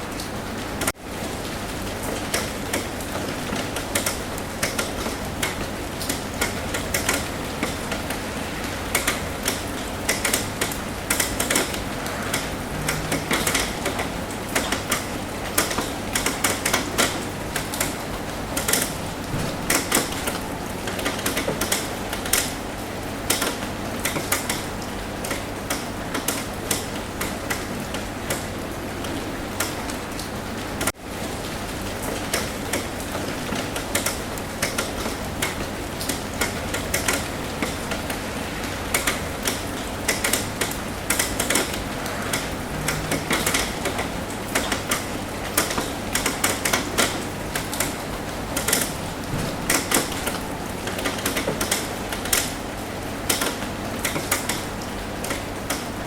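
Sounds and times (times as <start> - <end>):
rain hissing: 0.0 - 56.0
raindrops tapping on a roof: 0.0 - 56.0.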